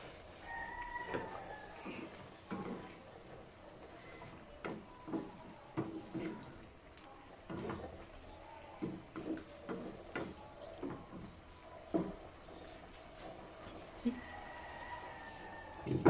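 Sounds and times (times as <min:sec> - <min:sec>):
spatula scraping frying pan: 0:00.0 - 0:06.8.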